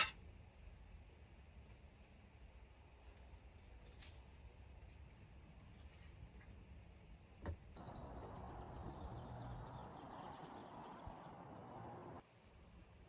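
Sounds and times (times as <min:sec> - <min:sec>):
steady outdoor hiss: 0:00.0 - 0:13.0
small birds chirping: 0:07.8 - 0:12.2.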